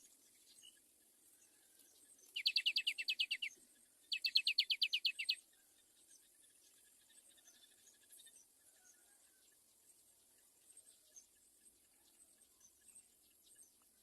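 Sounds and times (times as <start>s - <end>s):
faint high insect hiss: 0.0s - 14.0s
bird chattering trills: 2.4s - 3.5s, 4.1s - 5.4s.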